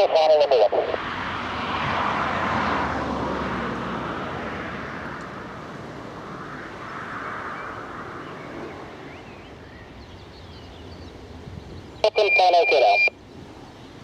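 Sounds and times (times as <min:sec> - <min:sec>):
jet engine rushing: 0:12.0 - 0:13.1.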